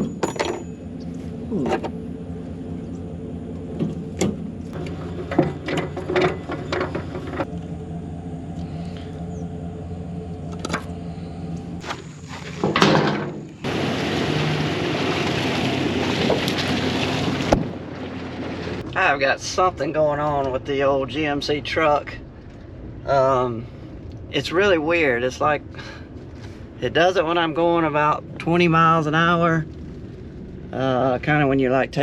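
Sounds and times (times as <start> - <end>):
metal clanks and knocks: 0.0 - 0.8, 3.7 - 7.5, 12.6 - 13.6
truck engine running: 0.0 - 32.0.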